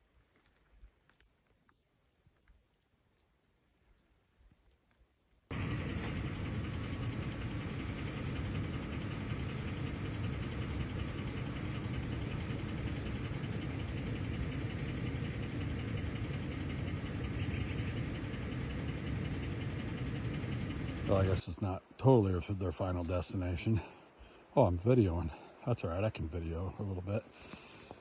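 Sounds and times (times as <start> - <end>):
vehicle engine running: 5.5 - 21.6.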